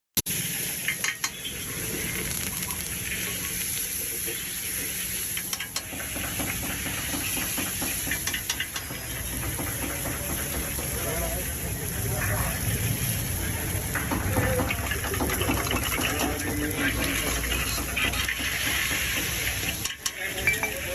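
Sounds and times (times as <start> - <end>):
hiss of frying: 0.3 - 20.9
utensils clinking against pot: 0.8 - 1.5, 5.3 - 11.2, 13.9 - 20.9.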